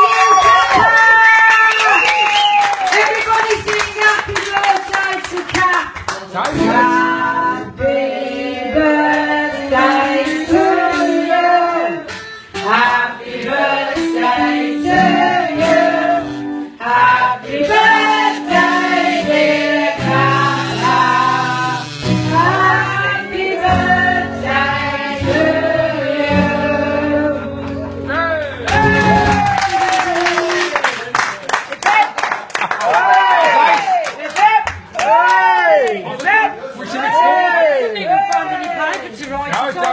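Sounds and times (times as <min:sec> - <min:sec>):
several voices singing: 0:06.6 - 0:28.1
instrumental backing with bass: 0:13.6 - 0:29.5.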